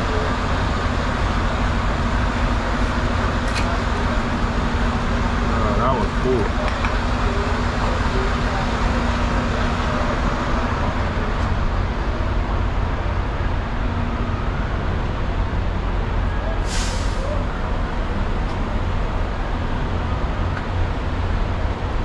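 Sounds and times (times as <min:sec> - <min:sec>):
road noise: 0:00.0 - 0:22.0
truck diesel engine rumble: 0:00.0 - 0:22.0
air hiss: 0:16.7 - 0:17.4.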